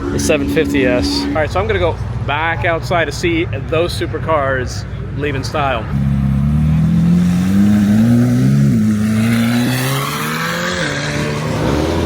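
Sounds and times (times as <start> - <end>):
car engine accelerating: 5.9 - 12.0.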